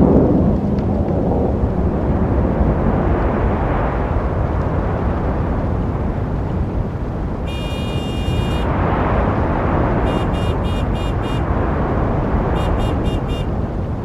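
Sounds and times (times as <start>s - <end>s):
road traffic noise: 5.0s - 14.0s
high-pitched car horn: 7.5s - 8.7s, 10.0s - 11.6s, 12.4s - 13.6s.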